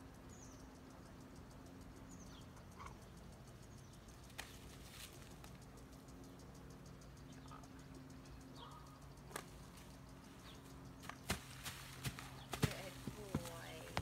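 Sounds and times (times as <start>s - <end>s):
faint high bird chirps: 0.0s - 5.2s, 6.1s - 11.3s.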